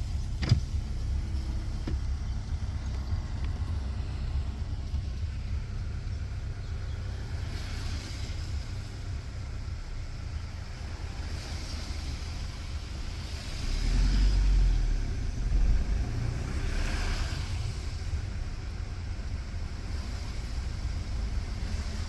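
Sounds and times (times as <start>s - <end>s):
vehicle engine rumble: 0.0s - 22.0s
hiss: 7.0s - 9.5s, 10.6s - 22.0s.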